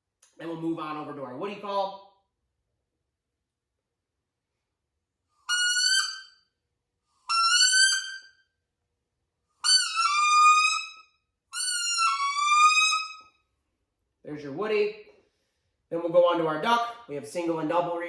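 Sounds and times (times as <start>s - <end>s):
whistled duck call: 5.5s - 6.4s, 7.3s - 8.4s, 9.6s - 13.3s.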